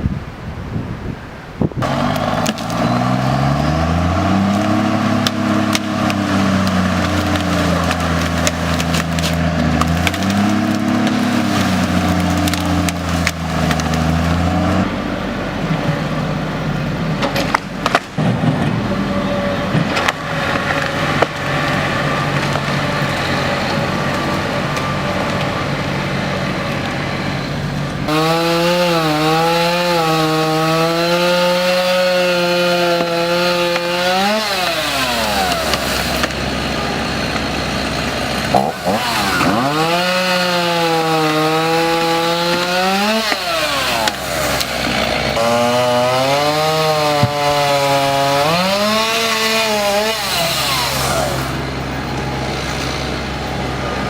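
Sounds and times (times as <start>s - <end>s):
chainsaw cutting wood: 1.8s - 14.9s, 28.0s - 53.6s
wood cracking and splintering: 1.8s - 15.0s, 17.0s - 53.8s.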